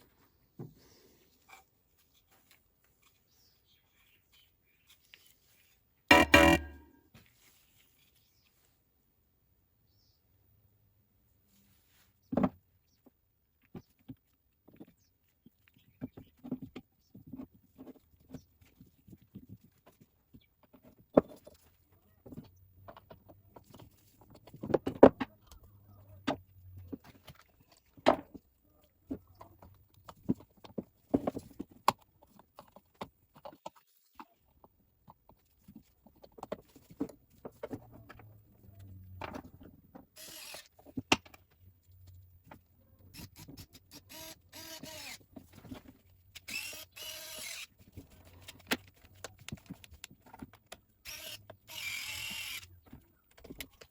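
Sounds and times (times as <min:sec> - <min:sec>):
rustle: 0:07.2 - 0:08.9.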